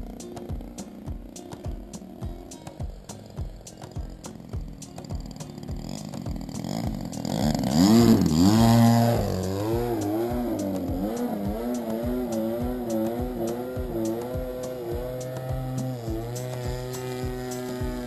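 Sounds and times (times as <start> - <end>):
background music with beat: 0.0 - 18.0
model aircraft engine passing: 4.4 - 18.0.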